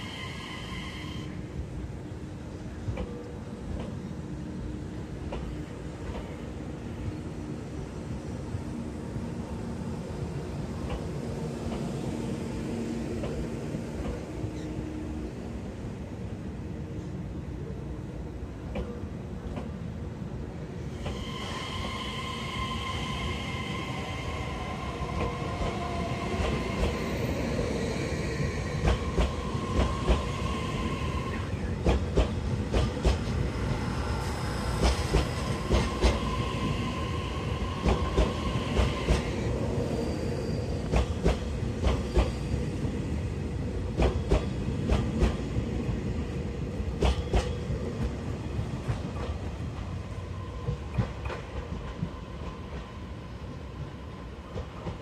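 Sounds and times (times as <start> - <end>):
train rumble with whining tones: 0.0 - 55.0.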